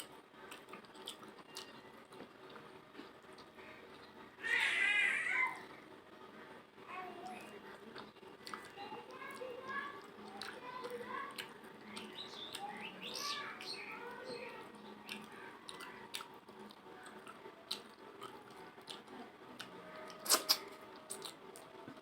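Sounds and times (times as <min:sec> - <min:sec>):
wet mouth clicks and smacks: 0:20.2 - 0:21.4.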